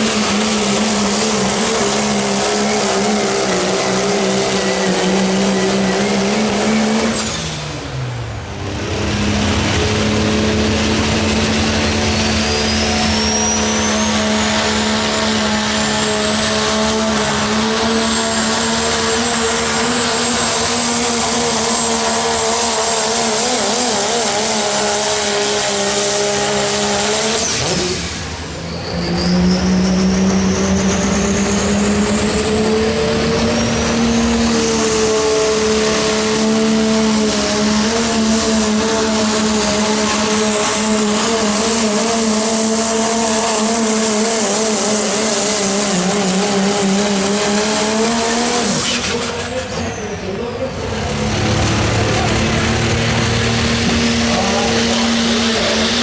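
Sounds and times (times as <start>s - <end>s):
truck engine running hard: 0.0s - 56.0s
high turbo whistle: 9.6s - 50.4s.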